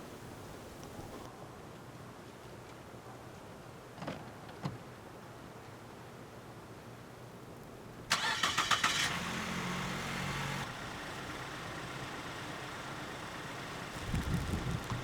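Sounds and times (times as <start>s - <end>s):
car engine cranking and idling: 8.1s - 15.0s.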